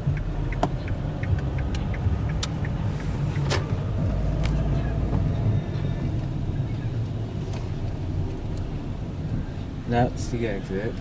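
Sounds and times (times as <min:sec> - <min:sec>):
light clicks and ticks: 0:00.0 - 0:03.7
car cabin rumble: 0:00.0 - 0:11.0.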